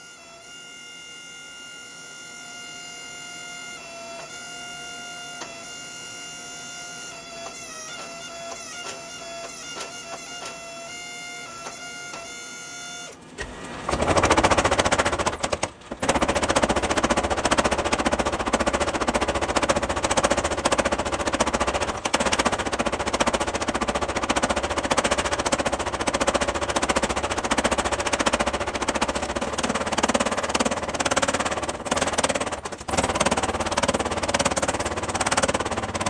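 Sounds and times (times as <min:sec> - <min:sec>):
power hammer pounding steel: 0:13.4 - 0:36.0.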